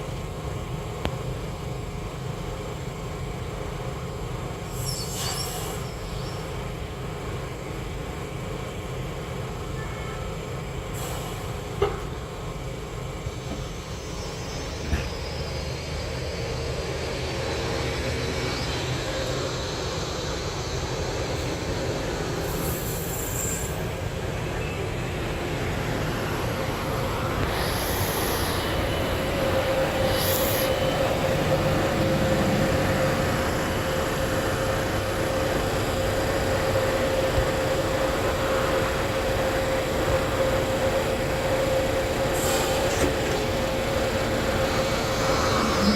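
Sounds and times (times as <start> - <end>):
rail cars moving with motor hum: 0.0 - 45.9
subway train running on track: 0.0 - 45.9
steady tone: 43.9 - 45.9.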